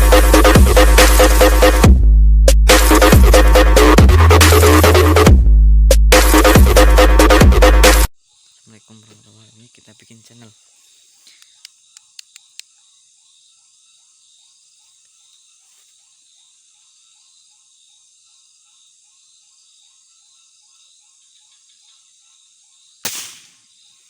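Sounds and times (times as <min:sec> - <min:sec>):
crickets and insects chirping: 0:08.2 - 0:24.0
air rifle shot: 0:23.0 - 0:23.7.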